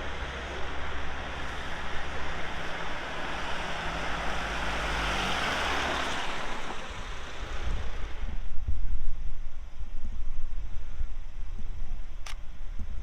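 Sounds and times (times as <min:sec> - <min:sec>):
tractor engine passing: 0:00.0 - 0:08.4.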